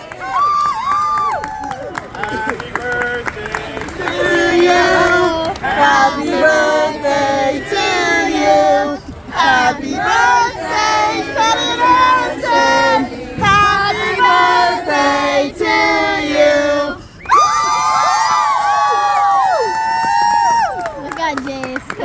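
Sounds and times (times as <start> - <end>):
children singing together: 4.1 - 17.0.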